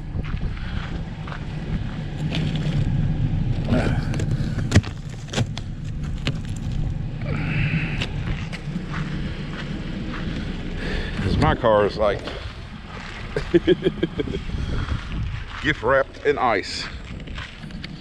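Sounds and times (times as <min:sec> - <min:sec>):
car engine running: 0:00.0 - 0:18.0
sharp cracks and crunches: 0:00.2 - 0:11.4.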